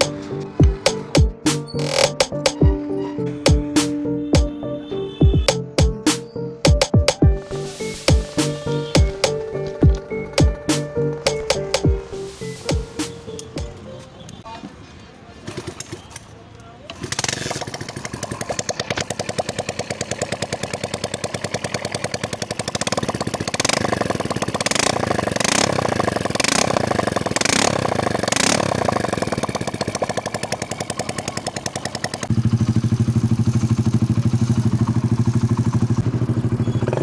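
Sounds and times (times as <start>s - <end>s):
motorcycle engine running: 0.0s - 2.8s, 3.5s - 12.0s, 17.0s - 37.0s
short sharp hits: 0.0s - 4.6s, 5.2s - 13.8s.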